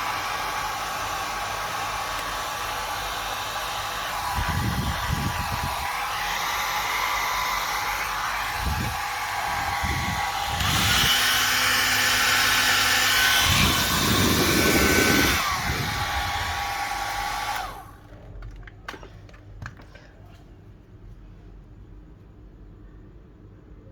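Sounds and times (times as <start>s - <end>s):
hair dryer running: 0.0s - 18.0s.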